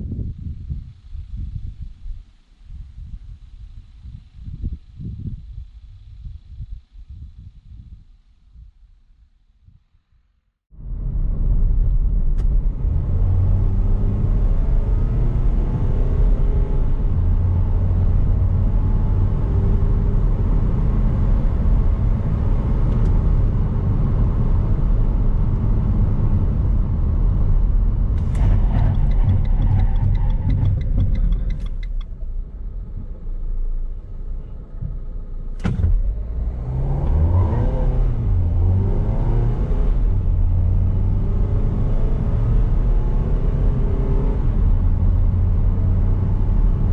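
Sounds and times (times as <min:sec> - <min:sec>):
van diesel engine accelerating: 0:10.8 - 0:46.9
sharp click: 0:28.2 - 0:32.2.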